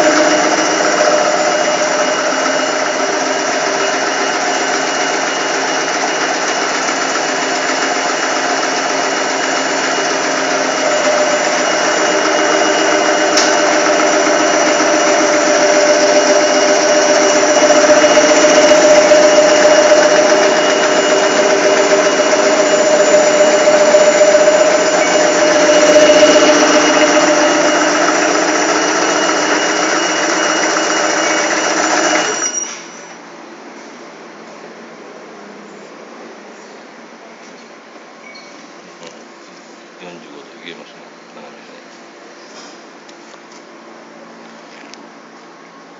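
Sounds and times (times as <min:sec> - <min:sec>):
slicing machine whine: 0:00.0 - 0:33.2.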